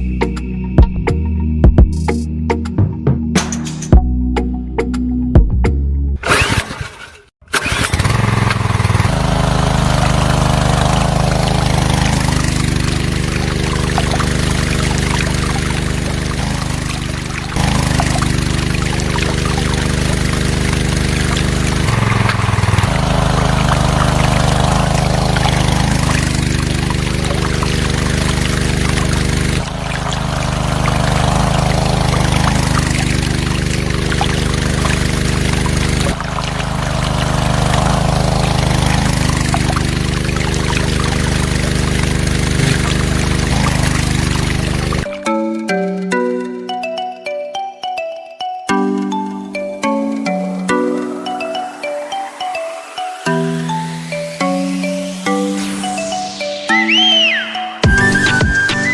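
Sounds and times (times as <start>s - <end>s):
water pump humming: 7.6s - 45.2s
water pouring and splashing: 7.6s - 45.3s.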